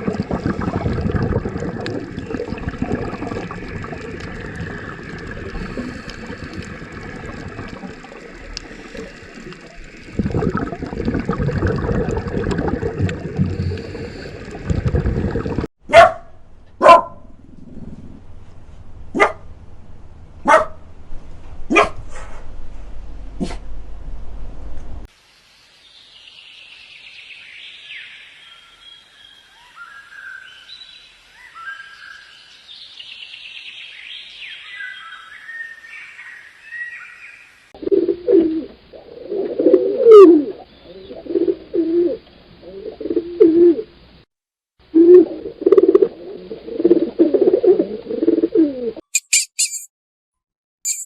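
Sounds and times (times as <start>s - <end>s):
dog barking: 15.9s - 17.3s, 19.1s - 19.5s, 20.4s - 20.8s, 21.7s - 22.4s, 23.4s - 23.6s
bird cooing: 37.8s - 44.0s, 44.9s - 49.0s.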